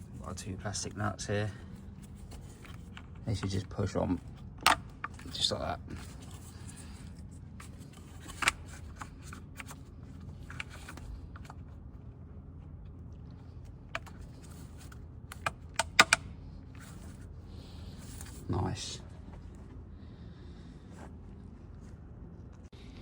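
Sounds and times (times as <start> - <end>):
sharp plastic clicks: 15.3 - 16.4.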